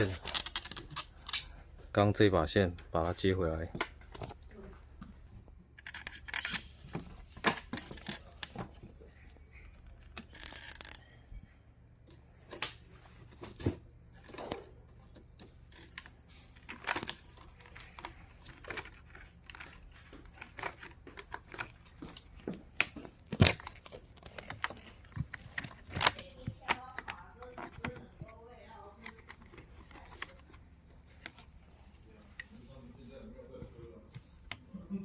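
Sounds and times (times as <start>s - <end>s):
plastic connectors clicking and rustling: 0.0s - 1.6s, 5.8s - 11.0s, 12.0s - 31.5s.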